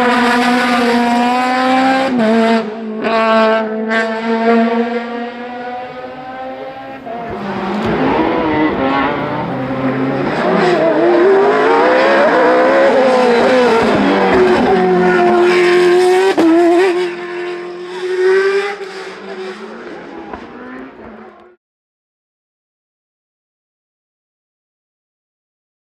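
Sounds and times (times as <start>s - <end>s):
racing car engine: 0.0s - 21.6s.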